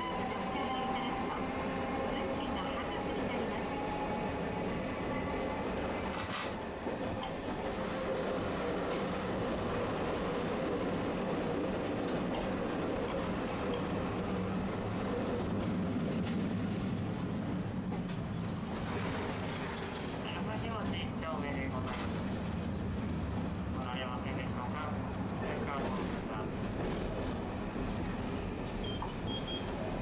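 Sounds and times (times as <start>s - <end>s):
streetcar motor and wheels rumbling: 0.0s - 30.0s
high-pitched wheel squeal: 17.6s - 20.6s.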